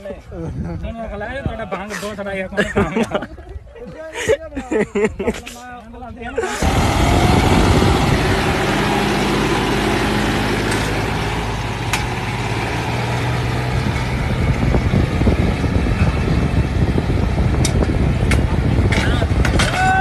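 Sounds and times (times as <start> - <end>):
diesel tractor engine running: 6.5 - 19.7.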